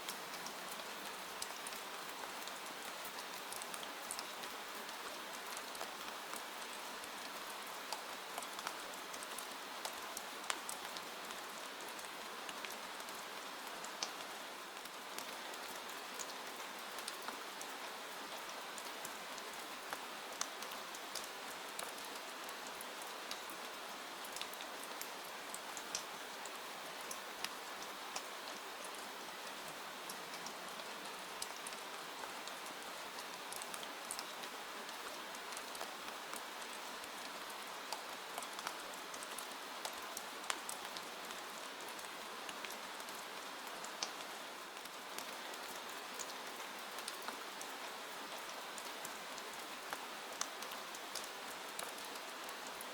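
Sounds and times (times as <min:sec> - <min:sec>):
raindrops ticking on surface: 0:00.0 - 0:52.9
steady rain hiss: 0:00.0 - 0:52.9.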